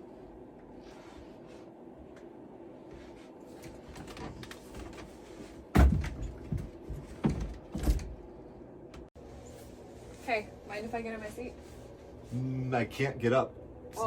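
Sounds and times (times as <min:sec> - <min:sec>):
steady low hum: 0:00.0 - 0:14.0
knocks and thumps: 0:05.7 - 0:08.2.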